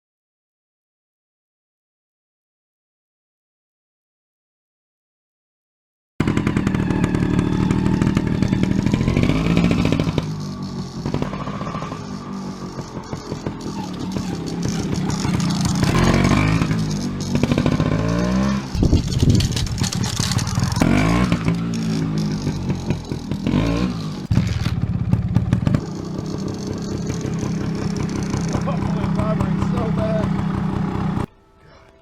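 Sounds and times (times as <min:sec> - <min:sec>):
motorcycle engine revving: 0:06.2 - 0:31.3.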